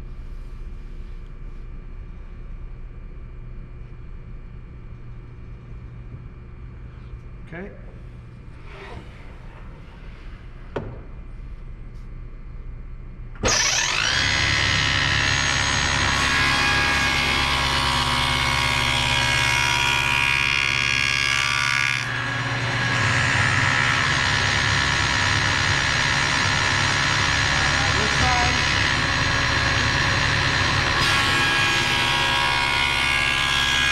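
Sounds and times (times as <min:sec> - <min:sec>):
saw cutting wood: 0:13.4 - 0:33.9
table saw running: 0:13.4 - 0:33.9.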